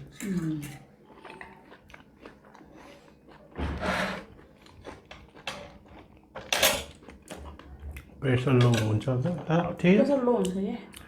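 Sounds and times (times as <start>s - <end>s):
chewing: 0.2s - 3.6s, 4.2s - 8.2s.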